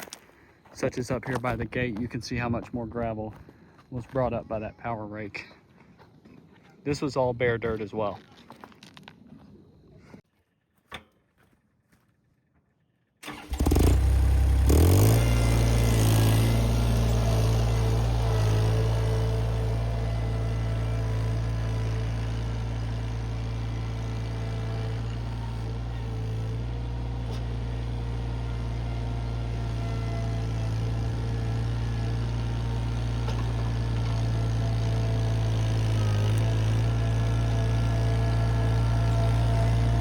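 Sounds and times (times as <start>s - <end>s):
skid steer engine starting and running: 13.2s - 40.0s.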